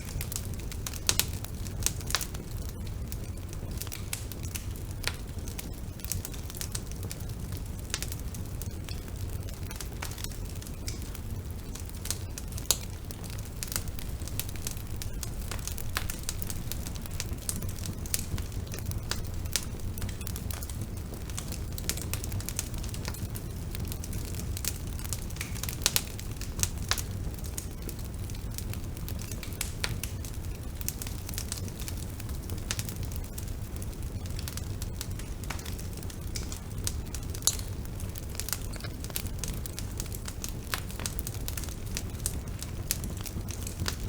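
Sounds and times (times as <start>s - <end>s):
burning wood crackling: 0.0s - 44.0s
rumble of flames: 0.0s - 44.0s.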